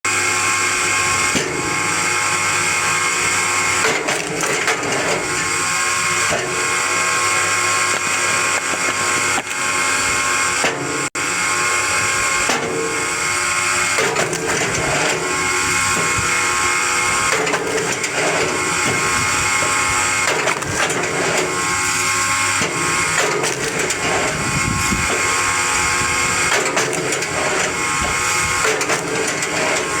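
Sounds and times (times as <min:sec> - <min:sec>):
log splitter machine whine: 0:00.1 - 0:30.0.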